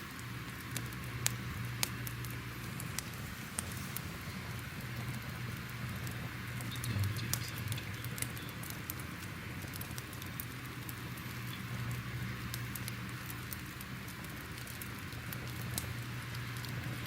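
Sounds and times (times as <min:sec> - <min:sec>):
fire hissing and rumbling: 0:00.0 - 0:17.0
fire pops and crackles: 0:00.0 - 0:17.0.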